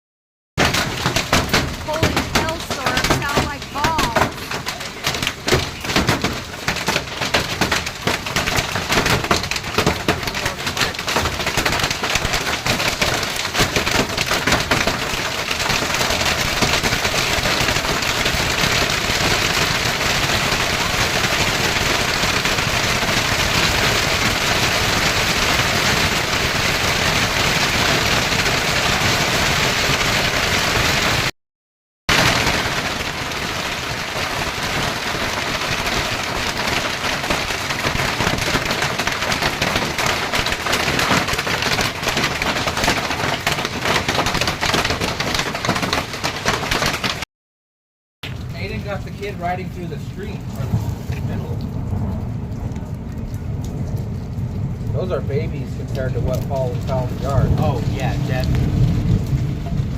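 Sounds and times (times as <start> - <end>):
hailstones pelting hard surfaces: 0.6 - 31.3, 32.1 - 47.2, 48.2 - 59.9
rain: 0.6 - 31.3, 32.1 - 47.3, 48.2 - 59.9.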